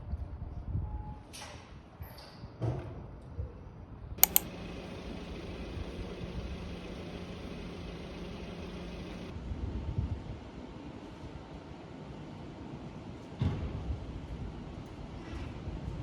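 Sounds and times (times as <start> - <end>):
sharp clicks: 4.2 - 9.3
small motor humming: 4.2 - 9.3.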